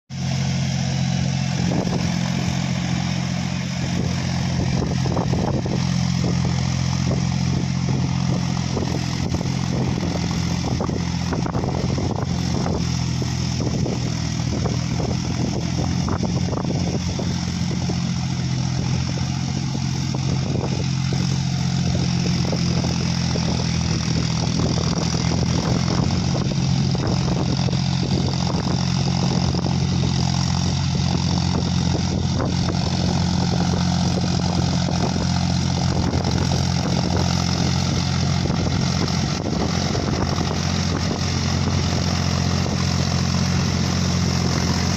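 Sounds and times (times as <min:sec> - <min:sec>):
tractor diesel engine droning: 0:00.1 - 0:44.9.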